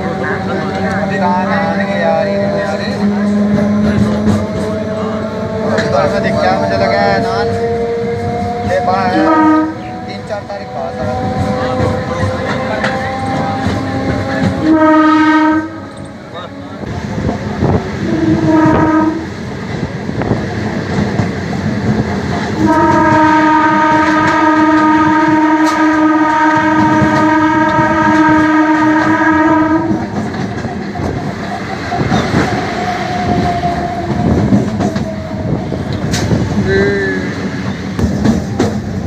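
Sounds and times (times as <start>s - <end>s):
train clattering on rails: 0.0s - 39.0s
train horn blasts: 0.8s - 16.8s, 18.0s - 19.4s, 22.6s - 30.2s.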